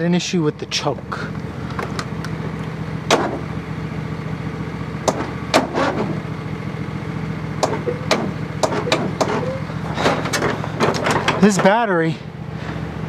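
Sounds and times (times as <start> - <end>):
low mechanical hum: 0.0 - 13.0
clicks and knocks of tools: 7.6 - 11.7.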